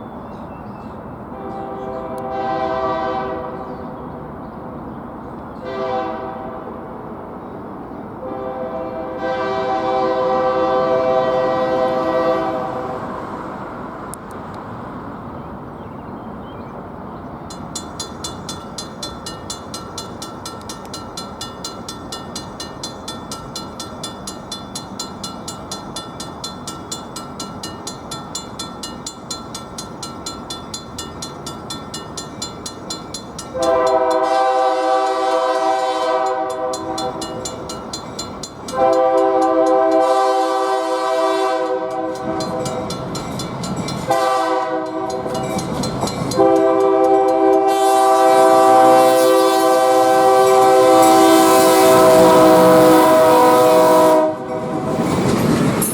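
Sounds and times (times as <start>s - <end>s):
locomotive air horn blasts: 1.3s - 3.7s, 5.6s - 6.8s, 8.2s - 13.2s, 33.5s - 37.2s, 38.7s - 42.9s, 44.1s - 45.4s, 46.3s - 54.9s
bell ringing: 45.0s - 46.4s.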